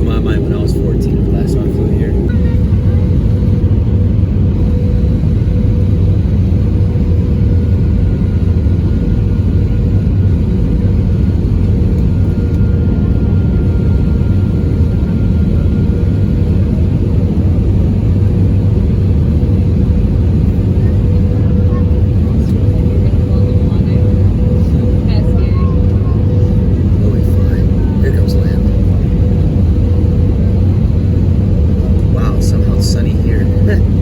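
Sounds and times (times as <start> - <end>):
faint steady hum: 0.0 - 9.0
aircraft cabin engine rumble: 0.0 - 34.0.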